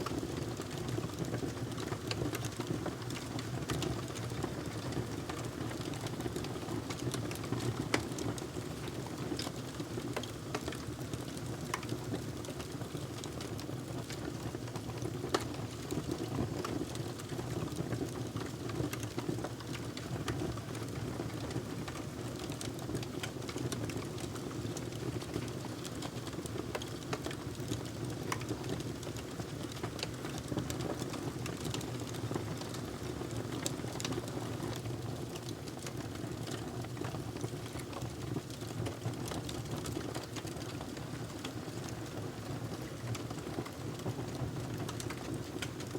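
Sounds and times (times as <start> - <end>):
fire crackling with pops: 0.0 - 45.9.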